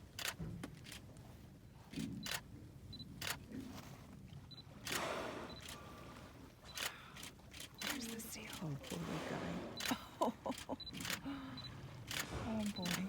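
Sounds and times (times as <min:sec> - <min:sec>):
camera shutter clicks: 0:00.2 - 0:01.0, 0:02.0 - 0:02.4, 0:03.2 - 0:03.4, 0:06.8 - 0:09.0, 0:10.9 - 0:11.2, 0:12.0 - 0:13.0.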